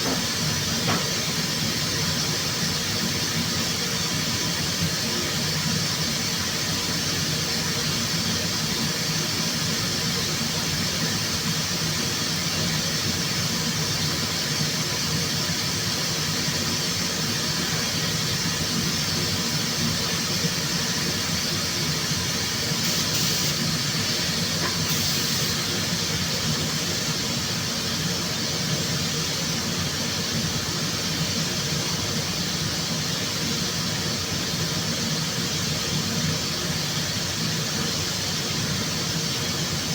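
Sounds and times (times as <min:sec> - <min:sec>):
compressed air and ventilation hum: 0:00.0 - 0:03.8, 0:04.6 - 0:39.9
spurts of air hiss: 0:20.9 - 0:26.6.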